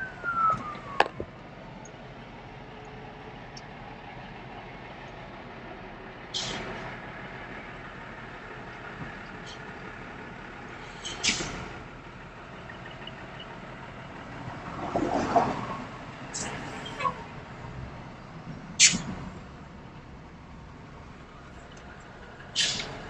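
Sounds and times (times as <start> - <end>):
heavy truck engine running: 0.0 - 23.0
short sharp hissing bursts: 6.3 - 6.7, 10.8 - 11.6, 18.8 - 19.1, 22.6 - 23.0.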